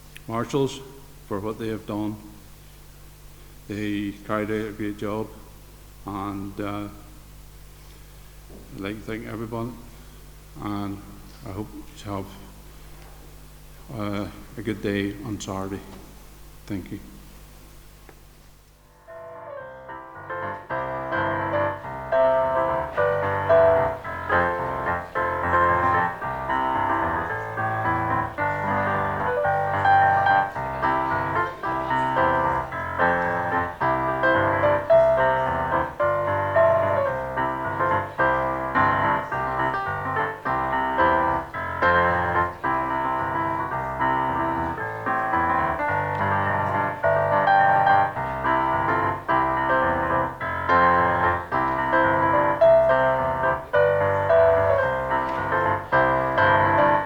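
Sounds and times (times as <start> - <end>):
fast piano music: 19.0 - 57.0.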